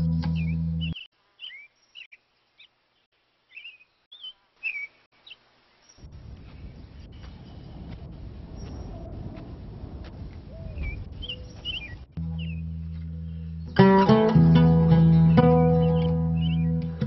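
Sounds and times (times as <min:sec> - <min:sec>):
plucked string music: 0:00.0 - 0:01.0, 0:12.2 - 0:17.0
bird chirps: 0:00.0 - 0:09.1, 0:10.5 - 0:13.8, 0:15.3 - 0:17.0.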